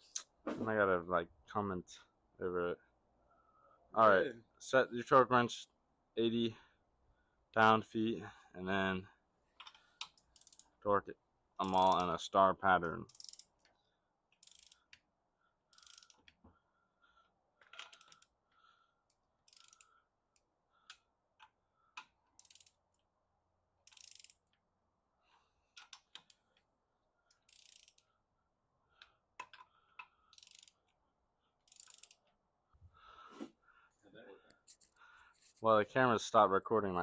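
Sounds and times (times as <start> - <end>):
sharp wrench clicks: 9.6 - 10.7, 13.1 - 13.6, 14.3 - 15.0, 15.7 - 16.3, 19.5 - 19.9, 22.0 - 22.8, 23.8 - 24.5, 27.3 - 28.0, 29.4 - 30.8, 31.7 - 32.3
torque wrench ratcheting: 9.6 - 10.8, 13.1 - 13.6, 14.3 - 15.0, 15.7 - 16.3, 17.8 - 18.3, 19.5 - 19.9, 22.4 - 22.8, 23.8 - 24.6, 27.3 - 28.1, 30.3 - 30.8, 31.6 - 32.3.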